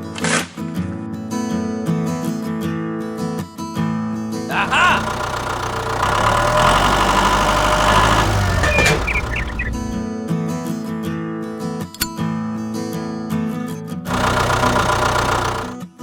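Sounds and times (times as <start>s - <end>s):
machine rattling with low rumble: 5.1s - 10.0s.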